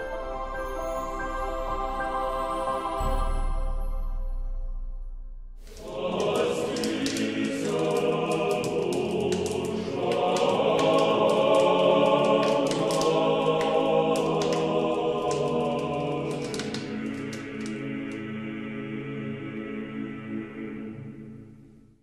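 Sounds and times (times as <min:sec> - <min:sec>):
choir singing in harmony: 0:00.0 - 0:04.2, 0:05.7 - 0:21.8
soft instrumental music: 0:00.0 - 0:07.0.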